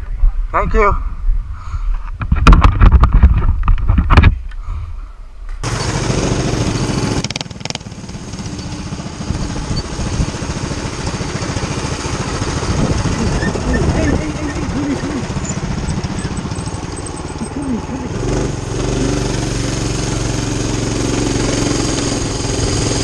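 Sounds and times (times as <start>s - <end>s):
mini-bike engines droning: 5.6s - 23.0s
motorcycle engine: 5.6s - 23.0s
wind buffeting microphone: 11.6s - 16.4s.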